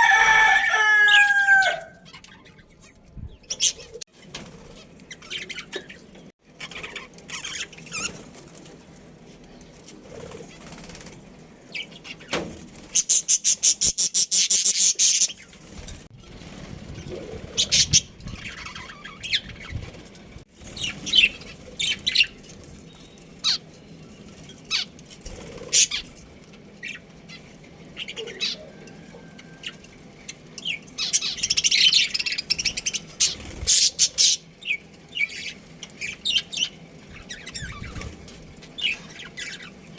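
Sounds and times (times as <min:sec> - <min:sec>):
budgerigars chirping and chattering: 0:02.0 - 0:04.0, 0:04.7 - 0:08.4, 0:11.7 - 0:15.7, 0:17.2 - 0:23.7, 0:24.3 - 0:29.0, 0:29.6 - 0:39.9.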